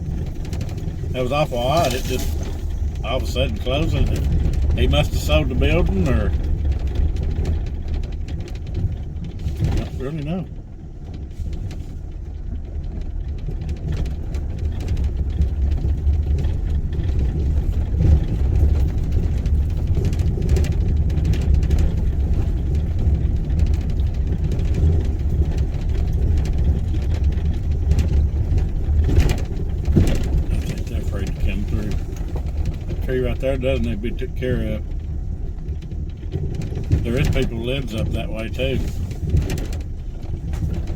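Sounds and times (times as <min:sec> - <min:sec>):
car cabin road rumble: 0:00.0 - 0:40.9
knocks and rattles: 0:00.0 - 0:40.9.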